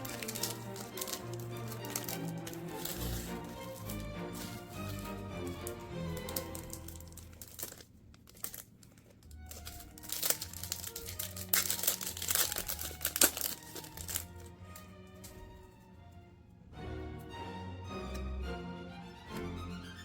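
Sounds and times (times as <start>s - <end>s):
background music: 0.0s - 7.8s, 9.3s - 20.0s
wrapper crinkling and tearing: 0.0s - 15.4s.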